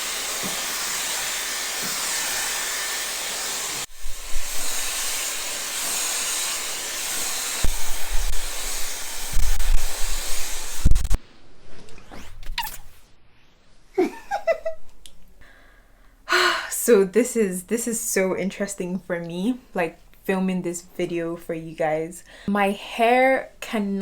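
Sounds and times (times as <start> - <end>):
hair dryer blowing: 0.0 - 11.2.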